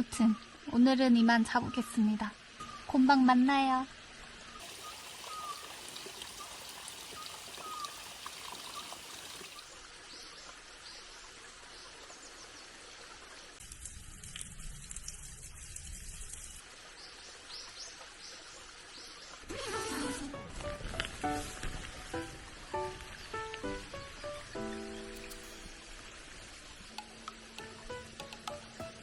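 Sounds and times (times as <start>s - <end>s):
low rush of water or wind: 3.9s - 13.6s
stream trickling: 3.9s - 19.6s, 20.3s - 29.0s
bird chirps: 4.6s - 9.6s.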